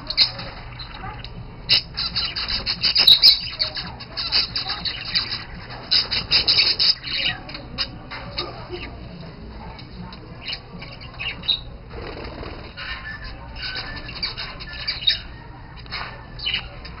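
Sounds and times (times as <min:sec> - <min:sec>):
budgerigars chirping and squawking: 0:00.0 - 0:17.0
wings fluttering: 0:04.0 - 0:07.1, 0:11.7 - 0:17.0.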